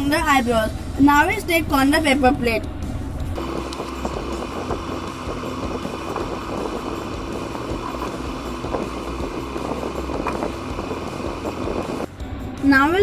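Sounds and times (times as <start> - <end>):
steady rumbling background noise: 0.0 - 13.0.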